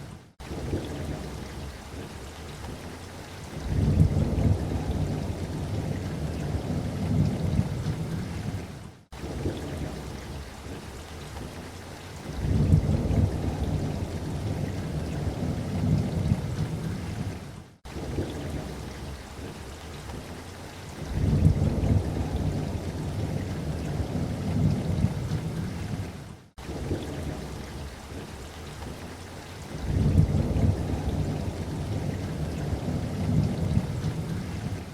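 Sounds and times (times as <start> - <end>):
steady rain: 0.0 - 34.9
deep rolling thunder: 3.6 - 10.4, 12.4 - 17.4, 21.0 - 28.3, 29.7 - 34.9.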